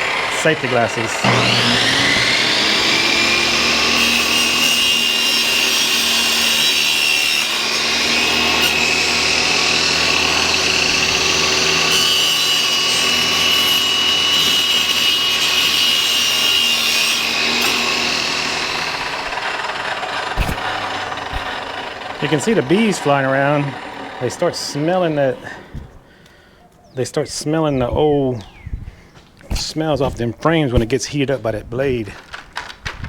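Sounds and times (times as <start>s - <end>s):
table saw cutting wood: 0.0s - 26.0s.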